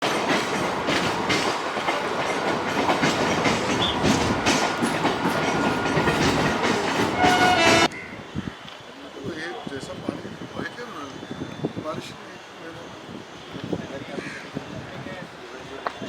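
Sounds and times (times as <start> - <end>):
train wheels clattering over rail joints: 0.0 - 7.9.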